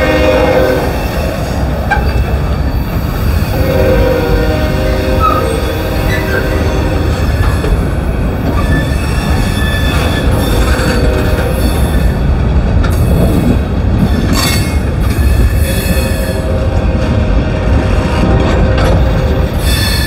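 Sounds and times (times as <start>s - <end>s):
train wheels rumbling on rail: 0.0s - 20.0s
wheel squeal: 8.5s - 11.0s.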